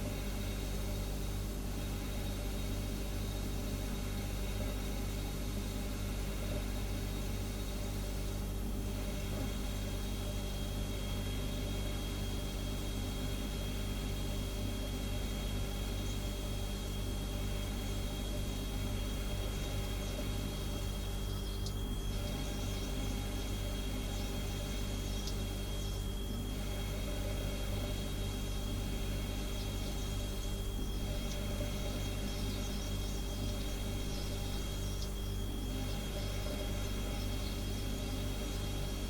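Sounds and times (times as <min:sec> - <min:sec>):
faint high whine: 0:00.0 - 0:39.0
refrigerator humming: 0:00.0 - 0:39.0.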